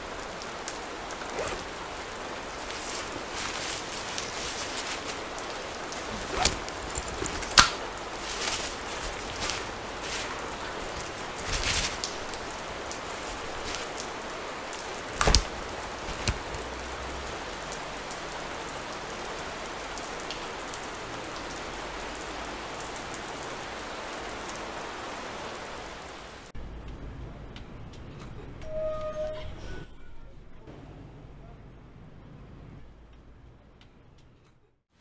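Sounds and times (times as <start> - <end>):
rain falling: 0.0 - 29.4
sharp snaps: 14.7 - 16.7.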